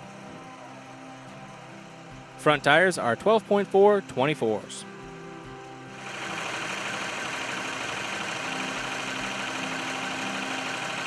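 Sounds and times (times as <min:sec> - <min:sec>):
tractor diesel engine idling: 0:05.4 - 0:11.0.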